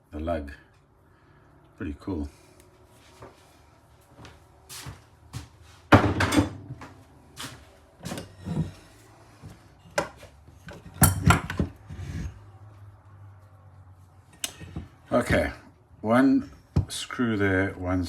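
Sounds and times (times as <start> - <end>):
motor parts and tools clattering: 8.0 - 9.0, 9.8 - 12.4.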